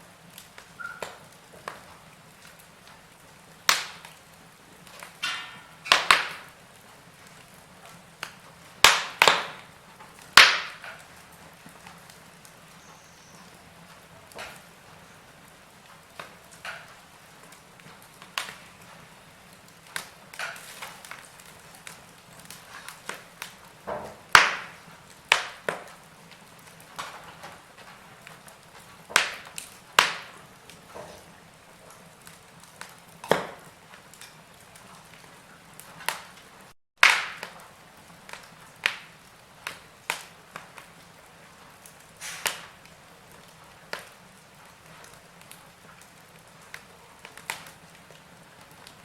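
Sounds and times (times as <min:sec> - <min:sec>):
faint steady hiss: 0:00.0 - 0:36.8
fire crackling and popping: 0:00.0 - 0:49.0.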